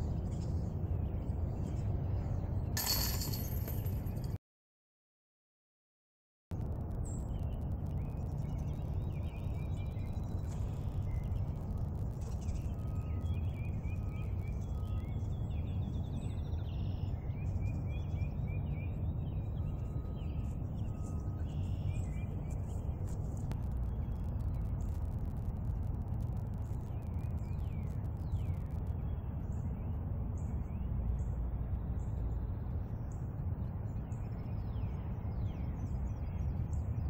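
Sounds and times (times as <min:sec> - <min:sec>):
steady low rumble: 0:00.0 - 0:04.4, 0:06.5 - 0:37.0
songbirds chirping and whistling: 0:07.0 - 0:25.1, 0:26.5 - 0:37.0.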